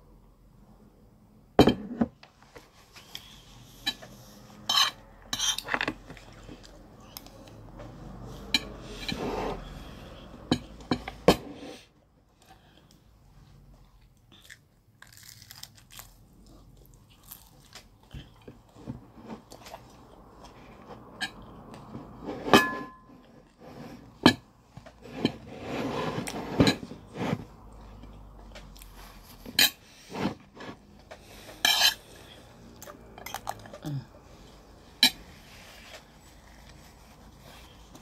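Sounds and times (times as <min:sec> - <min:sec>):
person chewing and biting food: 0:14.3 - 0:18.5.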